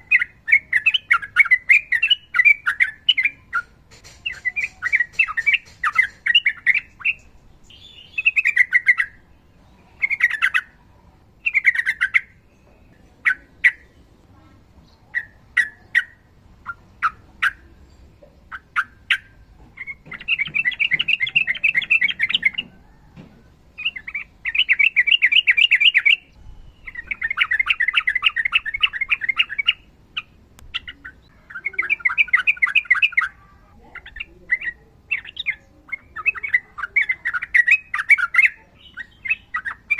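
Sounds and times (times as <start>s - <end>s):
bird singing chattering phrases: 0.0s - 39.9s.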